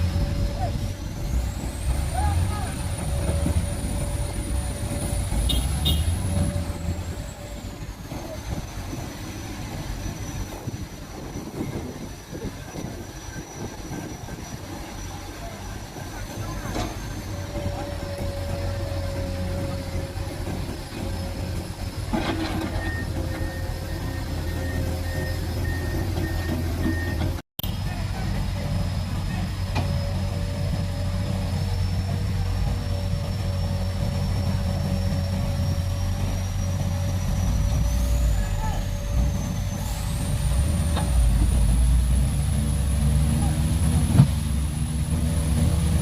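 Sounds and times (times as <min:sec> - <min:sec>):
diesel engine rumbling: 0:00.0 - 0:46.0
reversing alarm beeping: 0:21.6 - 0:27.4.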